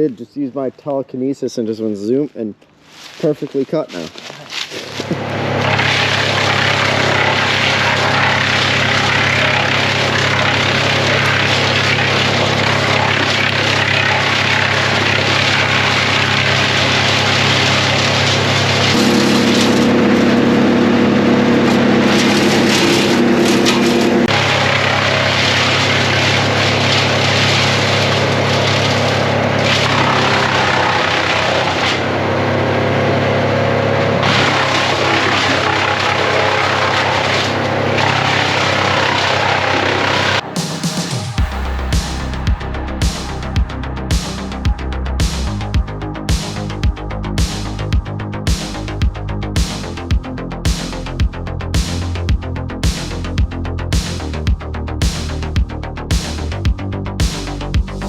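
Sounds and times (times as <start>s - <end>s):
wood chipper running: 2.9s - 58.0s.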